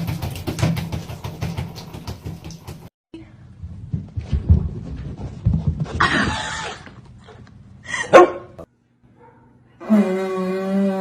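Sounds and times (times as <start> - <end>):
dog barking: 8.1 - 8.6, 9.2 - 9.6.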